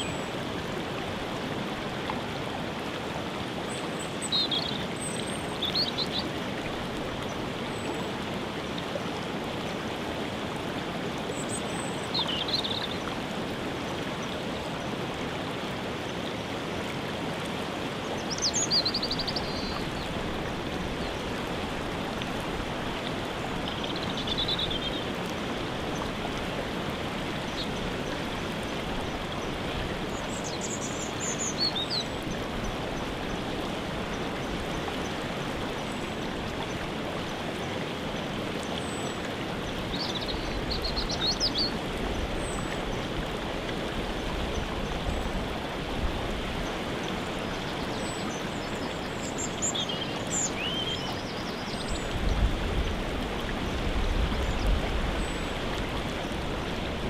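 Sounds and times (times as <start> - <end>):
waterfall rushing: 0.0 - 57.0
songbirds chirping: 18.0 - 26.2, 44.2 - 53.0.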